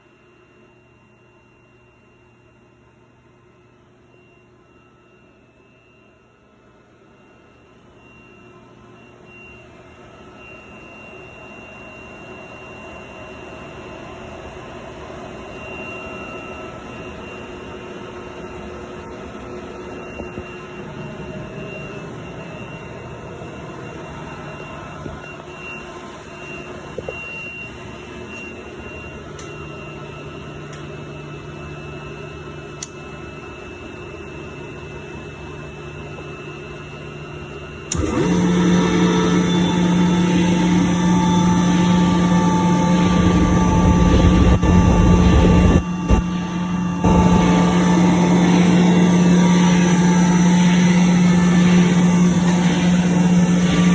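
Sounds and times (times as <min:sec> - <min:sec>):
air compressor running: 0:37.9 - 0:53.9.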